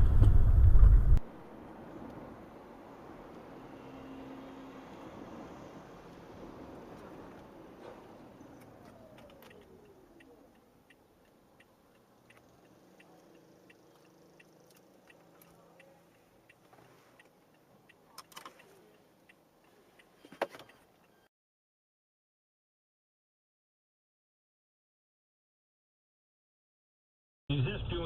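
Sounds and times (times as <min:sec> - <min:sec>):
turn signal ticking: 0:06.9 - 0:21.3.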